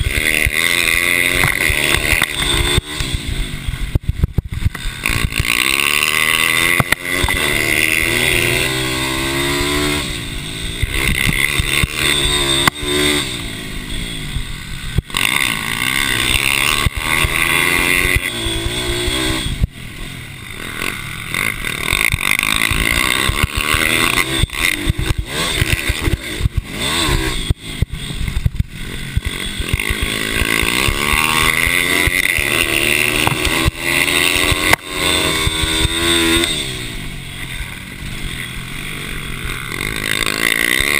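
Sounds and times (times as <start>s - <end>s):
mini bike engines revving: 0.0s - 40.9s.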